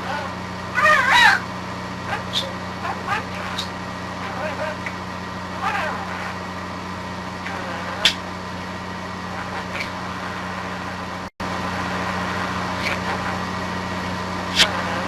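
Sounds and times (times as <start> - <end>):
budgerigar chirping: 0.0 - 1.5, 2.1 - 4.8, 7.5 - 8.3, 9.3 - 10.5
steady low hum and hiss: 0.0 - 15.0.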